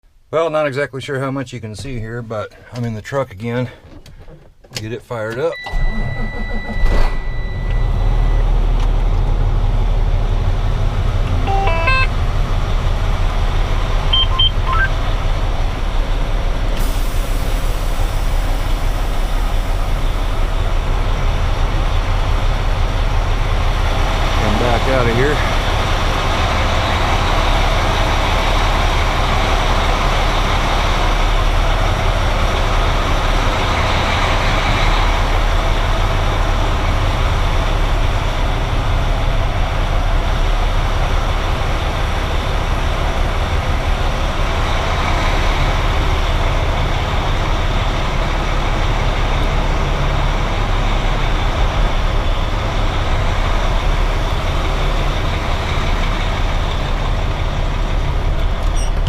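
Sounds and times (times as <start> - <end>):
truck diesel engine running: 7.5 - 59.0.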